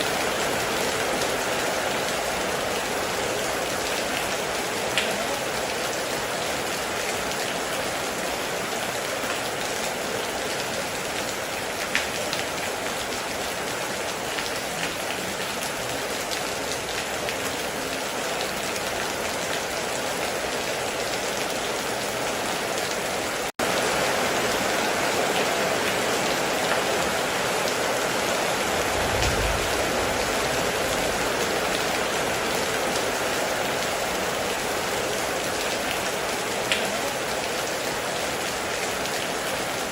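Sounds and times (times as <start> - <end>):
heavy rain on a metal roof: 0.0 - 39.9
low rumble: 28.6 - 32.3.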